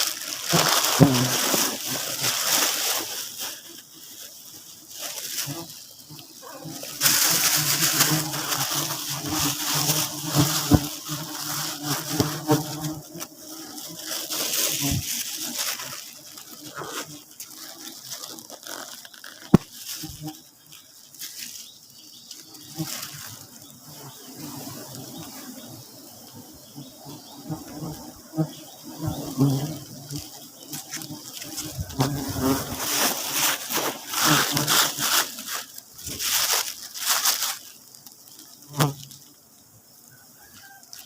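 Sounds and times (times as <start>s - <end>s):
bees buzzing: 0.0s - 40.0s.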